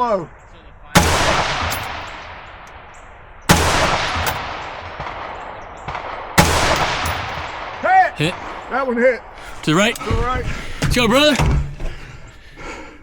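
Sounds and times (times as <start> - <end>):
rifle shots with echo: 0.9 - 8.6.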